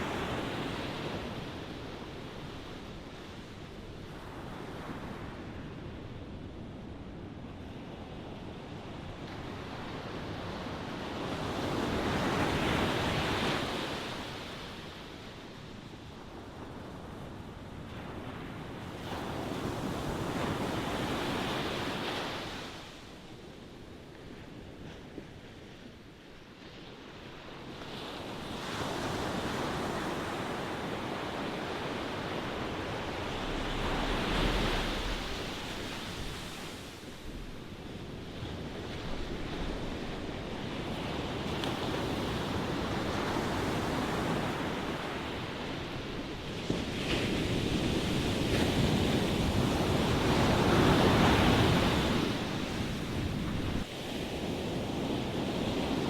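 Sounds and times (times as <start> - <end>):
ocean waves breaking on shore: 0.0 - 56.0
wind noise on microphone: 27.5 - 56.0.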